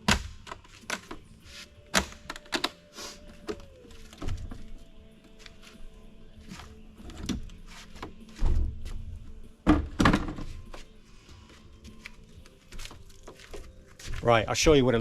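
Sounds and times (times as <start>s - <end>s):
plastic knocks and thunks: 9.6s - 10.5s.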